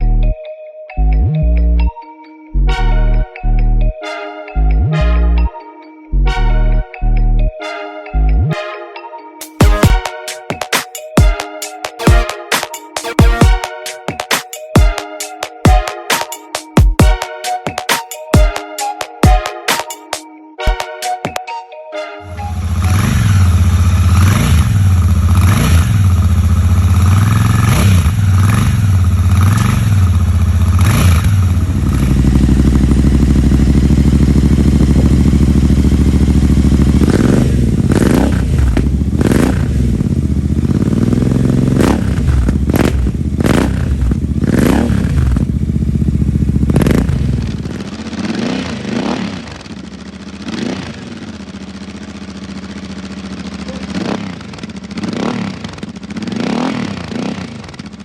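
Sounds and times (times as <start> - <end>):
motorcycle engine revving: 22.3 - 58.0.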